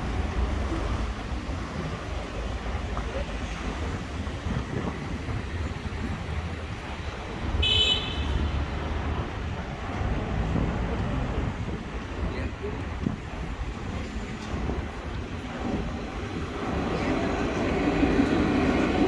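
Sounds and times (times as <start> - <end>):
street traffic rumble: 0.0 - 19.0
vehicle horn beep: 7.6 - 8.6.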